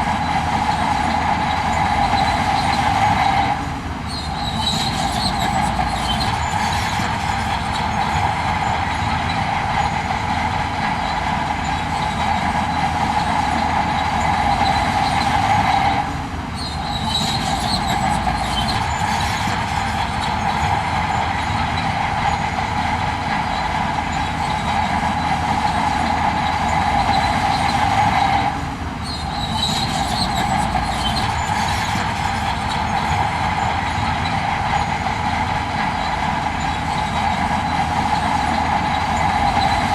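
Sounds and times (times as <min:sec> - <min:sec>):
high metallic squeal: 0:00.0 - 0:39.9
low engine drone: 0:00.0 - 0:39.9.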